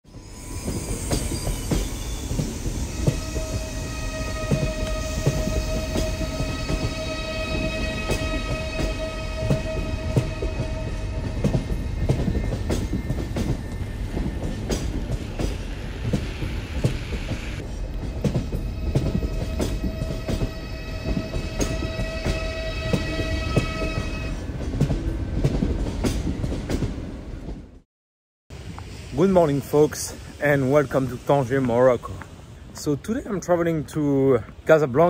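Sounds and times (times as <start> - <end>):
train wheels clicking over rails: 0.2 - 27.6.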